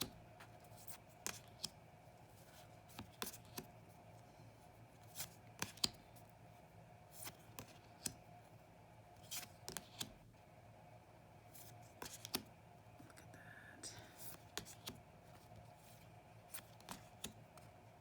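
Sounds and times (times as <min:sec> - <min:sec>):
cards clicking and sliding: 0:00.5 - 0:01.8, 0:02.5 - 0:03.7, 0:05.0 - 0:06.2, 0:07.2 - 0:08.2, 0:09.2 - 0:10.2, 0:11.6 - 0:12.5, 0:14.2 - 0:17.7.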